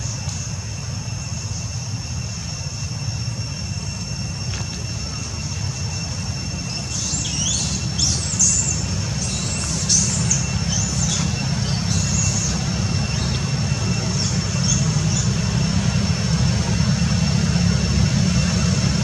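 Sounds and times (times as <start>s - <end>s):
steady low rumble: 0.0s - 19.0s
birds chirping: 4.5s - 19.0s.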